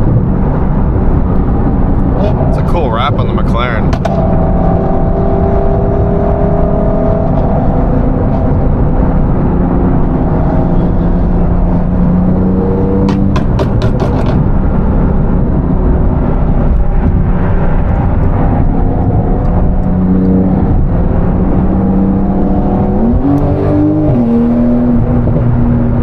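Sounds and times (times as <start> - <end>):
car engine droning: 0.0 - 26.0
road noise: 0.0 - 26.0.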